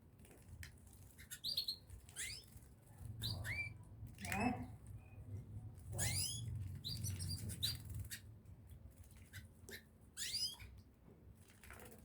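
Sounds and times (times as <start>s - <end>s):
small birds chirping: 1.1s - 3.9s, 5.9s - 8.3s, 9.2s - 10.8s.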